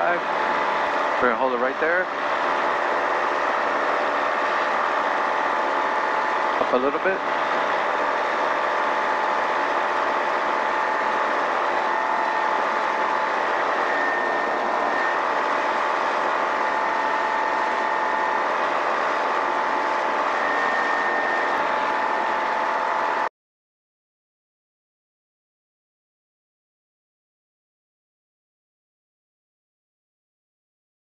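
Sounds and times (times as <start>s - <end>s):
light aircraft engine droning: 0.0s - 23.3s.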